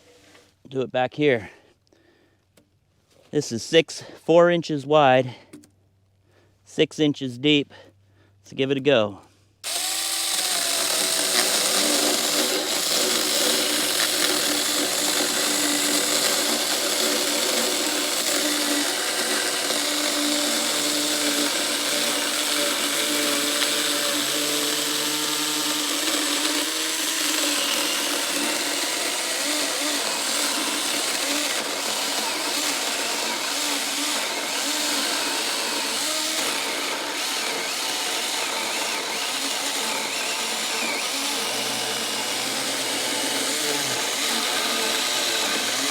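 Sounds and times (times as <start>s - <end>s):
electric chainsaw cutting wood: 9.6s - 45.9s.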